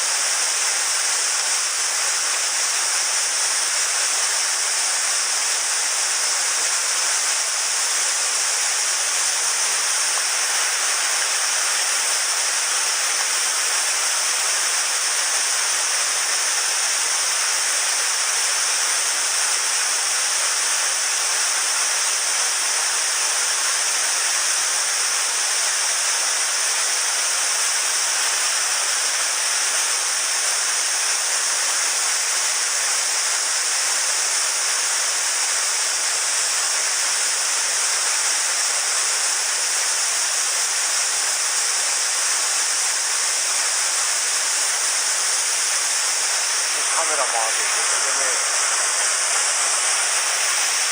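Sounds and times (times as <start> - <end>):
stream water rushing: 0.0 - 18.4, 37.6 - 50.9.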